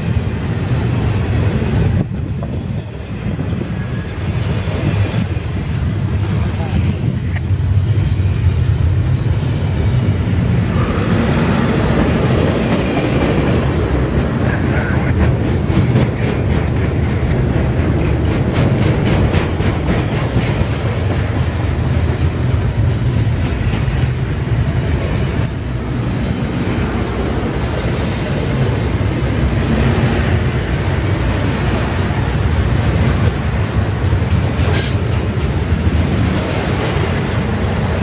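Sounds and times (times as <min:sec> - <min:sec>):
freight train rumbling past: 0:00.0 - 0:38.0
wheels clicking over rail joints: 0:11.7 - 0:38.0.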